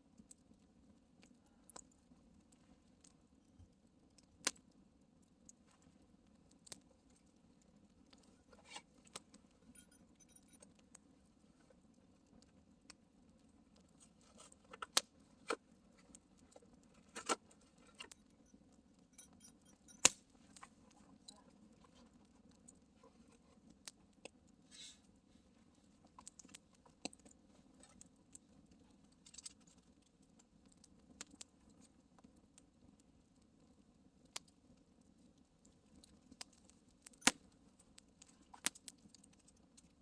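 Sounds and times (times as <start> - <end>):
campfire crackling and popping: 4.1 - 8.3, 26.0 - 40.0.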